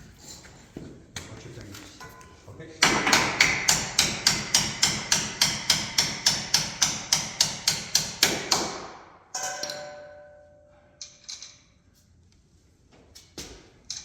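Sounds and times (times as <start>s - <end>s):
ringing metallic clang: 9.3s - 11.0s.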